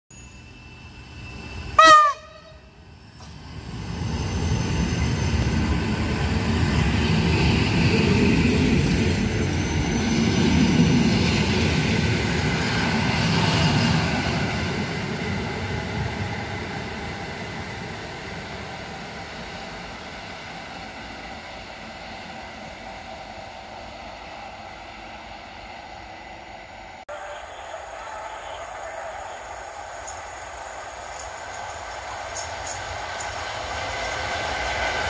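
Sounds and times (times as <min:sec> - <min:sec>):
train horn blast: 0:01.8 - 0:02.7
train wheels rolling on rails: 0:02.7 - 0:26.4, 0:27.1 - 0:35.0.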